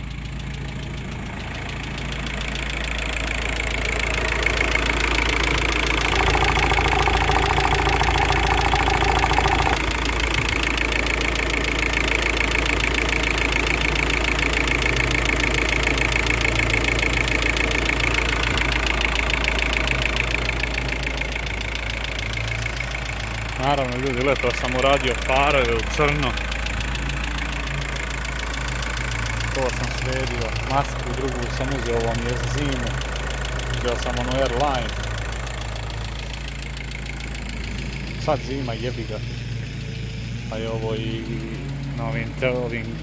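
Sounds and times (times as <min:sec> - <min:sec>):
diesel engine clattering: 0:00.0 - 0:43.0
high tone: 0:06.0 - 0:09.8
man talking: 0:23.5 - 0:26.4, 0:29.5 - 0:33.0, 0:33.8 - 0:34.9, 0:38.2 - 0:39.2, 0:40.5 - 0:43.0.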